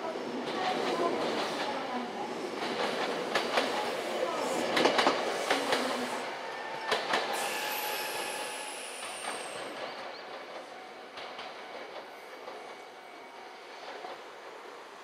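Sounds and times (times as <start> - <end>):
train running noise: 0.4 - 13.0
thin high squeal: 7.3 - 9.7.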